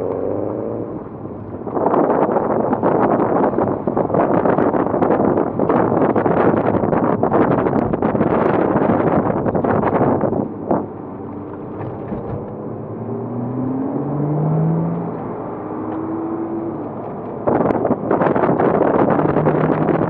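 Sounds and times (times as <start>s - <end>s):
car engine driven hard: 0.0s - 20.0s
quieter engine note climbing: 10.5s - 18.2s.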